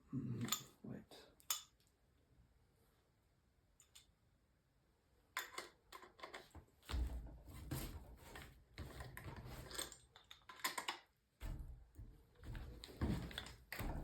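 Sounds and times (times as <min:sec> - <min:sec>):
tools clicking and knocking: 0:01.4 - 0:01.9, 0:05.4 - 0:07.1, 0:08.8 - 0:14.0
dull thuds: 0:11.4 - 0:14.0.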